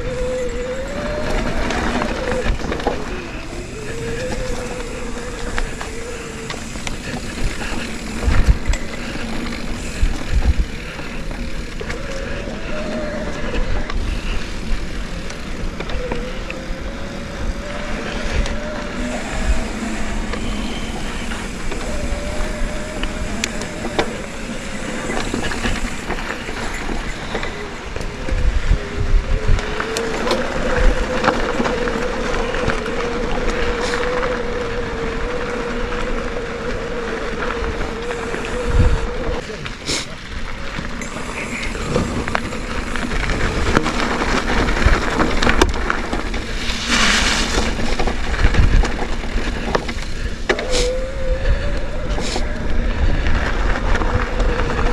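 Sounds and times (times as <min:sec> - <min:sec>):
bike rattling over bumps: 0:00.0 - 0:54.9
wavering hum: 0:00.0 - 0:54.9
wind on microphone: 0:00.0 - 0:54.9.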